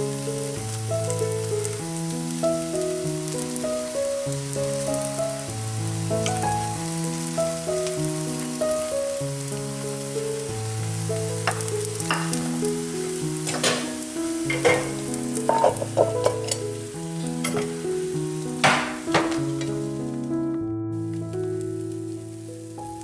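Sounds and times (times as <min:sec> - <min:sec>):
pancakes sizzling in oil: 0:00.0 - 0:20.3
chopsticks tapping and scraping pan: 0:13.5 - 0:16.7, 0:17.4 - 0:17.8.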